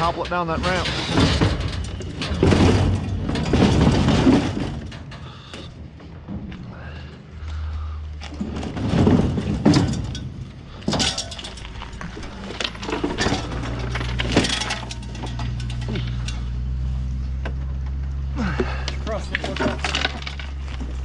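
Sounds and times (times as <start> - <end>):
debris crashing onto a pile: 0.0 - 5.6, 8.3 - 16.6, 18.4 - 21.0
glass clinking and breaking: 9.4 - 16.6, 19.2 - 20.6.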